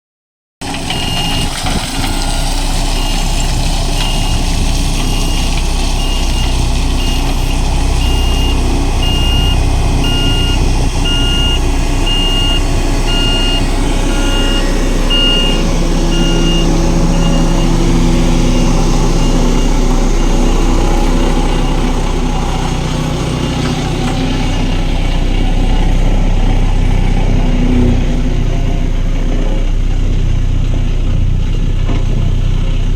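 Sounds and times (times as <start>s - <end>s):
diesel engine running: 0.6s - 32.9s
back-up alarm beeping: 0.9s - 3.3s, 4.0s - 4.4s, 5.0s - 21.8s.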